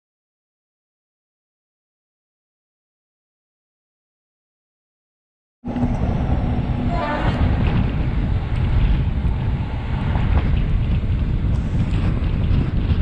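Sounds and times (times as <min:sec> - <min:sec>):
train rumble: 0:05.6 - 0:13.0
wind buffeting microphone: 0:05.6 - 0:13.0.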